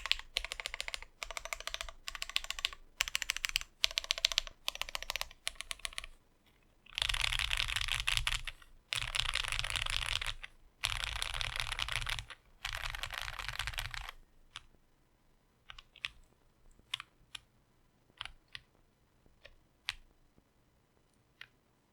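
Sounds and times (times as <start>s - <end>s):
keyboard keystrokes: 0.0s - 6.1s.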